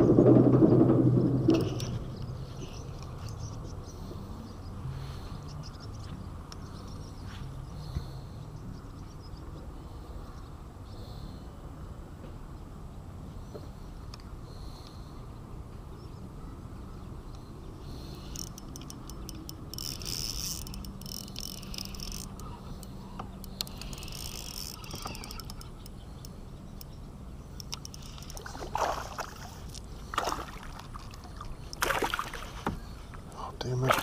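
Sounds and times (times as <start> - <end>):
louder knocks: 0.0 - 2.0
fishing gear clicking and rattling: 0.0 - 3.5, 18.1 - 34.0.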